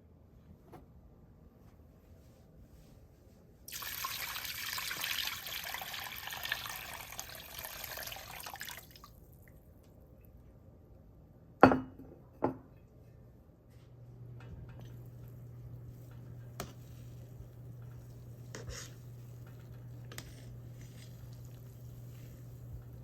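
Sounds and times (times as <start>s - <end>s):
water running from a tap: 3.7s - 9.2s.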